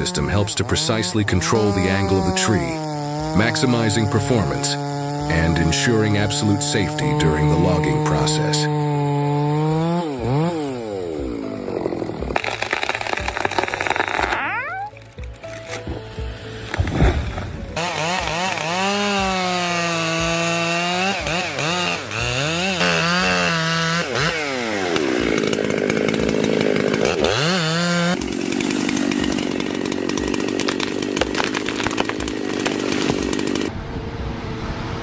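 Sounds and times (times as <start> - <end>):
saw engine revving and cutting wood: 0.0 - 33.8.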